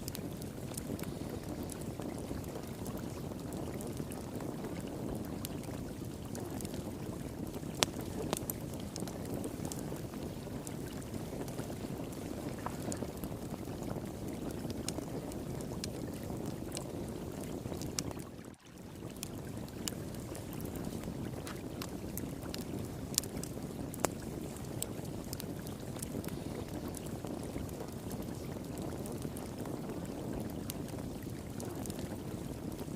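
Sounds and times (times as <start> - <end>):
wood fire crackling: 0.0 - 32.9
running water rushing: 18.2 - 21.7.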